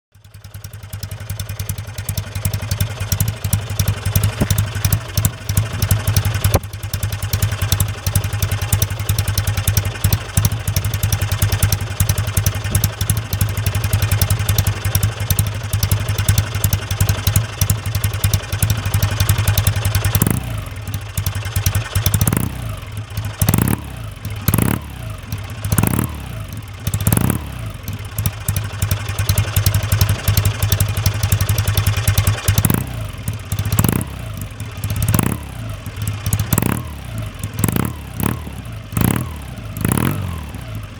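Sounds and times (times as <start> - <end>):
motorcycle engine idling: 0.1 - 40.9.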